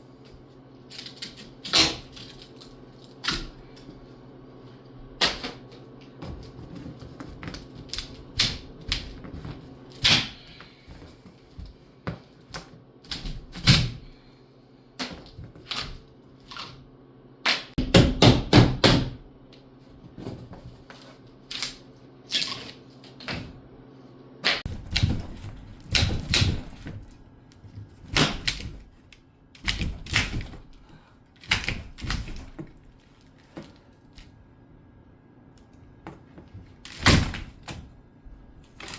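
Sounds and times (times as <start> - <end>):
objects knocking and thudding: 24.6 - 29.0.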